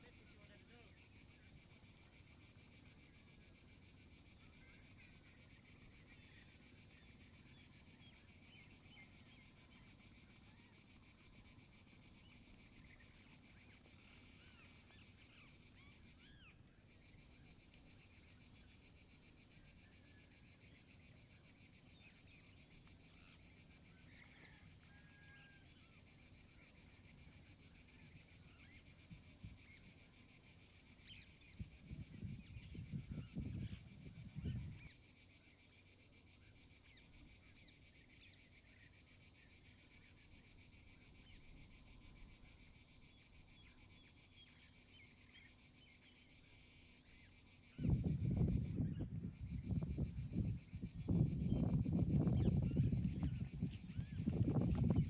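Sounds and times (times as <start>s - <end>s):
insect chorus trilling: 0.0s - 55.0s
short insect chirps: 41.2s - 55.0s.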